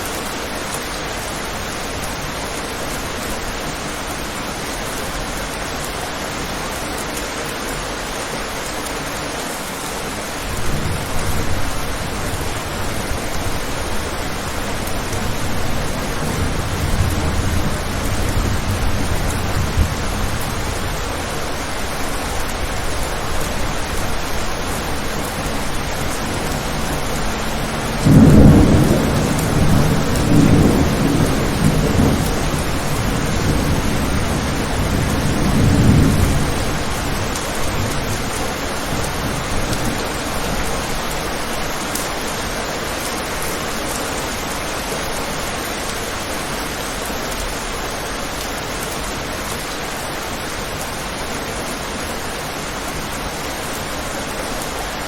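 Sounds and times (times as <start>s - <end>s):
steady rain: 0.0s - 55.0s
rolling thunder: 10.5s - 41.4s.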